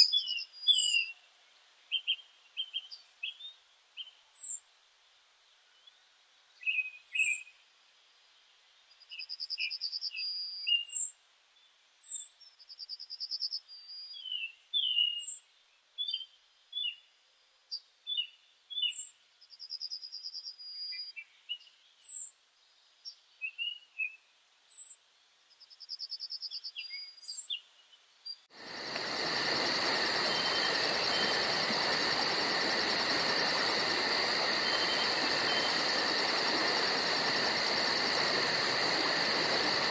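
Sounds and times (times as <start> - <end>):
songbirds chirping: 0.0 - 39.9
insect chorus buzzing: 28.5 - 39.9.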